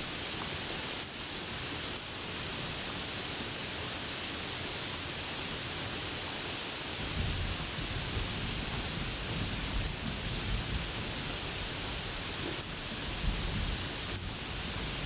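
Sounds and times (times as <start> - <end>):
heavy rain hissing: 0.0 - 15.0
low rumble of thunder: 7.0 - 15.0.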